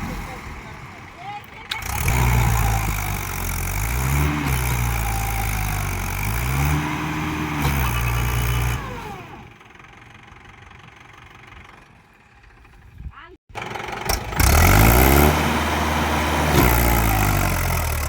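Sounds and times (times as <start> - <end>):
tractor diesel engine revving: 0.0 - 12.6, 13.5 - 18.0.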